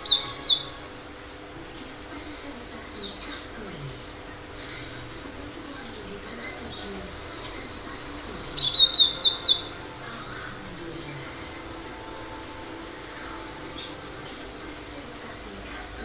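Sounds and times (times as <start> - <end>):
faint high chirping: 0.0 - 1.0, 2.8 - 16.0
bird singing sharp notes: 8.3 - 14.6.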